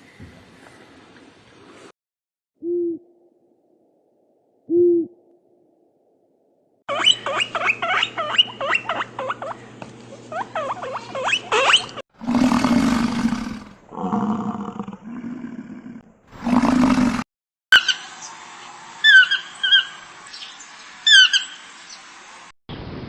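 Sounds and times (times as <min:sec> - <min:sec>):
animal high chirps and squeals: 0:06.9 - 0:09.6, 0:10.3 - 0:12.0, 0:19.0 - 0:21.6
animal rasping roar-like calls: 0:12.2 - 0:17.3.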